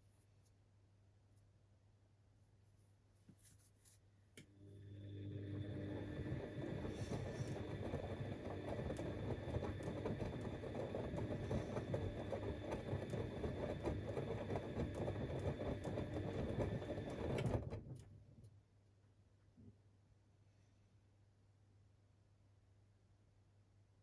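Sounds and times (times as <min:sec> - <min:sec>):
washing machine churning: 0:04.8 - 0:18.1.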